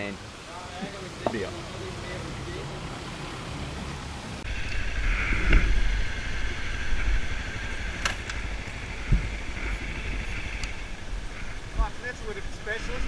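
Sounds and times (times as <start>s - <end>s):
wind rumble on microphone: 3.1s - 13.0s.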